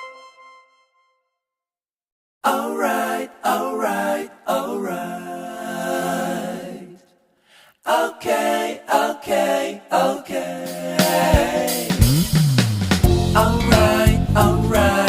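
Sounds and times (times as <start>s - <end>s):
a cappella voices singing in harmony: 2.4s - 12.2s, 13.0s - 15.0s.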